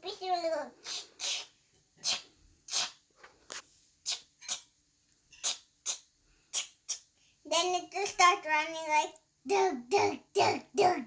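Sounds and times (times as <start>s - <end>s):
child hissing through mouth: 0.8s - 3.0s.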